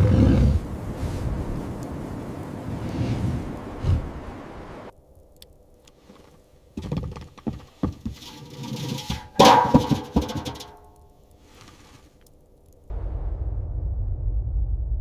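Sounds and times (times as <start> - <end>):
knocks and thuds: 6.8 - 10.8.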